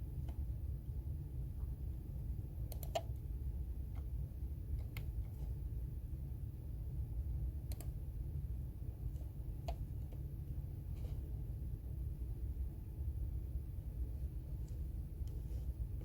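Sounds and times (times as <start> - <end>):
low room hum: 0.0 - 16.0
computer keyboard keystrokes: 2.7 - 3.2, 7.6 - 7.9.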